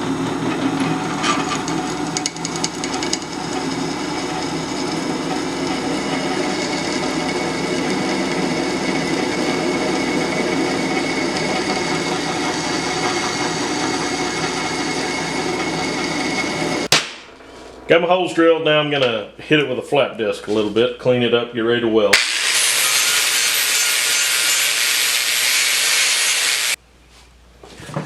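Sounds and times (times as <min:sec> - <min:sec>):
power drill boring through steel: 0:02.8 - 0:16.9, 0:22.2 - 0:26.8.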